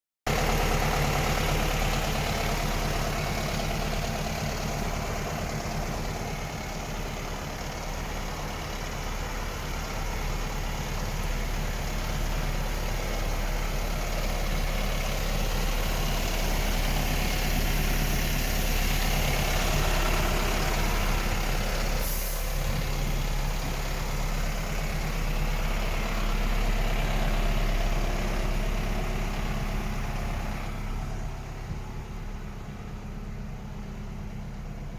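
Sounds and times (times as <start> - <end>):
truck diesel engine idling: 0.3 - 34.9
short hiss: 22.0 - 22.6.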